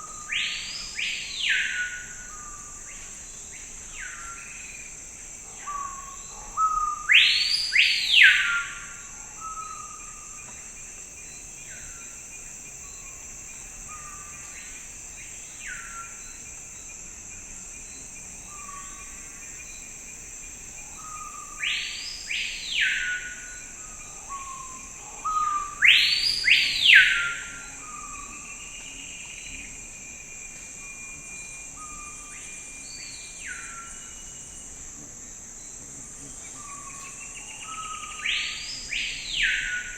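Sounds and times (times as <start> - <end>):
high insect drone: 0.0 - 39.9
songbird singing whistled notes: 5.7 - 10.3, 21.0 - 29.7, 36.5 - 39.9.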